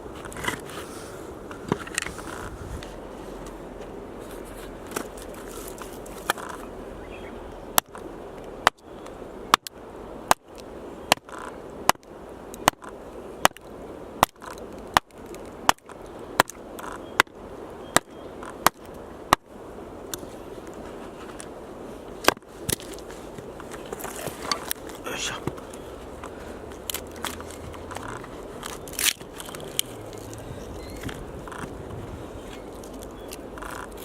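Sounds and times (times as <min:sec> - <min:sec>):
axe chopping firewood: 0:11.1 - 0:12.0, 0:14.2 - 0:16.6.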